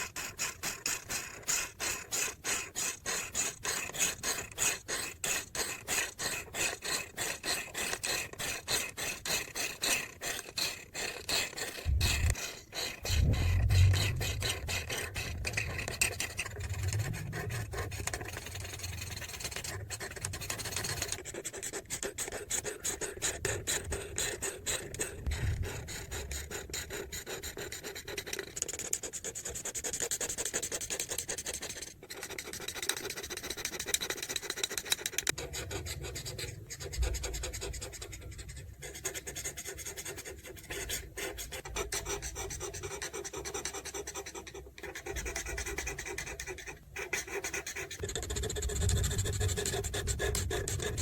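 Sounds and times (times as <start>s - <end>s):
marker rubbing on paper: 0.0s - 51.0s
low bumps: 11.9s - 12.4s, 13.0s - 18.8s, 48.0s - 51.0s.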